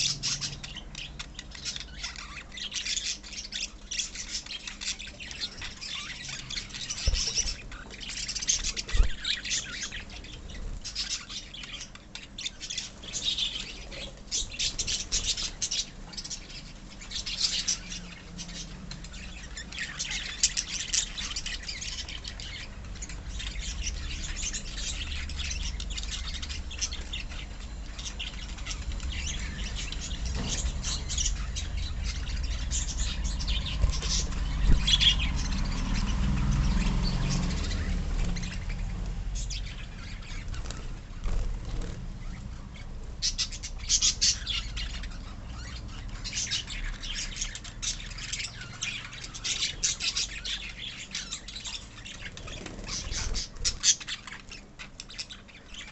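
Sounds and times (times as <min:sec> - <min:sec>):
lovebirds chirping and squawking: 0:00.0 - 0:55.9.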